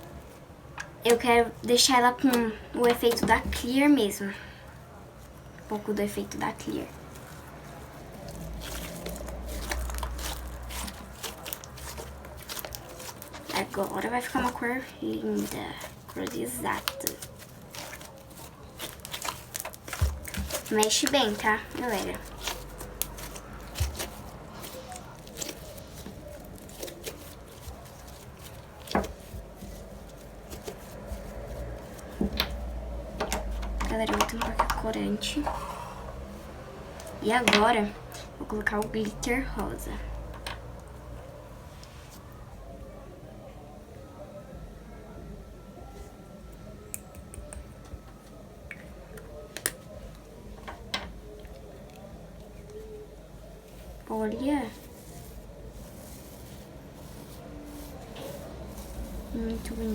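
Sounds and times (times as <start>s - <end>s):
slime stirred in a bowl: 0.0s - 41.2s, 47.2s - 59.9s.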